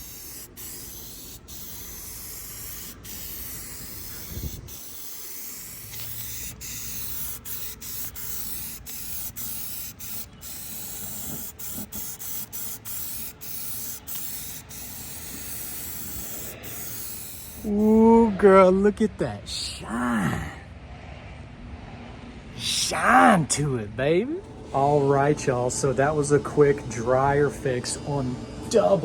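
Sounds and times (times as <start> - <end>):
spray paint can hissing: 0.0 - 17.8.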